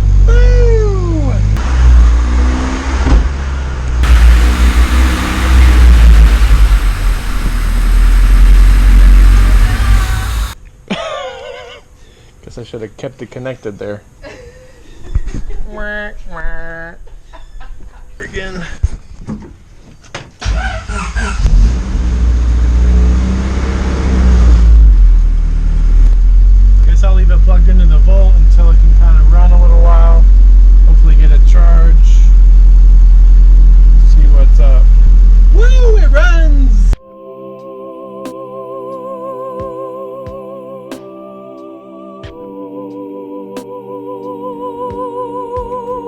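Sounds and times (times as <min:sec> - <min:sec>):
car engine running: 0:04.0 - 0:10.6.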